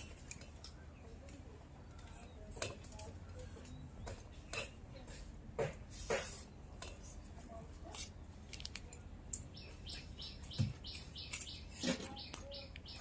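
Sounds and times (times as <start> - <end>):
small bird chirping: 9.3 - 13.0.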